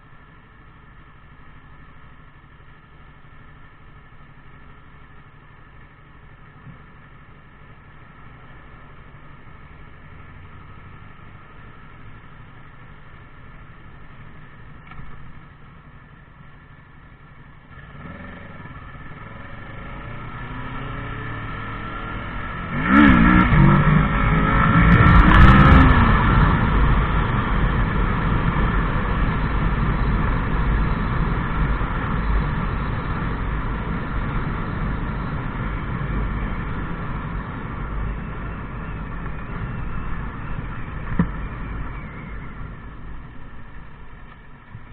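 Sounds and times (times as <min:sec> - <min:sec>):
motorcycle engine revving: 0:17.6 - 0:44.9.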